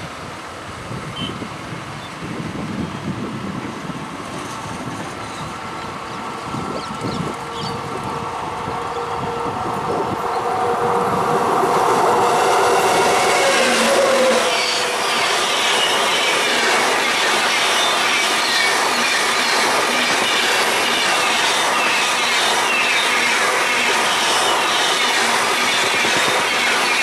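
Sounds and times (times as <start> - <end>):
electric locomotive hum: 0.1 - 27.0
train wheels rolling: 3.1 - 27.0
wheel squeal: 13.0 - 27.0.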